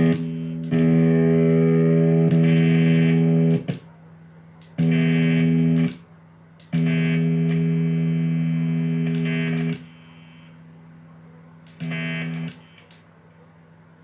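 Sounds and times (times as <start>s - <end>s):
sharp clicks: 0.0s - 0.9s, 2.3s - 2.7s, 3.5s - 3.9s, 4.6s - 5.0s, 5.8s - 7.7s, 9.0s - 9.9s, 11.6s - 13.1s
electric guitar held chord: 0.0s - 3.8s, 4.8s - 6.0s, 6.7s - 10.0s, 11.6s - 12.6s.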